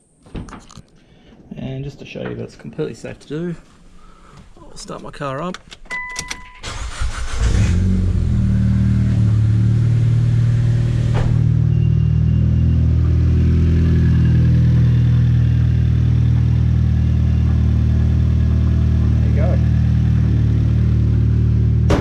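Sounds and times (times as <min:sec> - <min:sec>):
car starter cranking: 0:05.8 - 0:08.3
car engine idling: 0:06.6 - 0:22.0
short electronic beep: 0:11.5 - 0:13.0.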